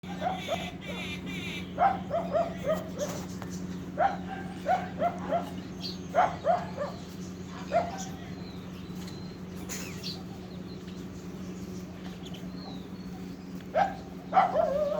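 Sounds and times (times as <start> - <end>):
dog barking: 0.0 - 1.0, 1.7 - 3.2, 4.0 - 8.2, 13.7 - 14.9
steady low hum: 0.0 - 14.9.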